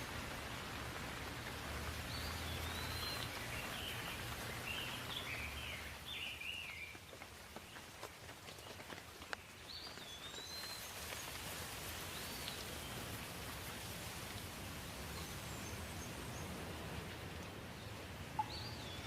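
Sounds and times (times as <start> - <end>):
rain with drips: 0.0 - 19.0
songbird chirping and warbling: 2.1 - 7.0, 17.8 - 19.0.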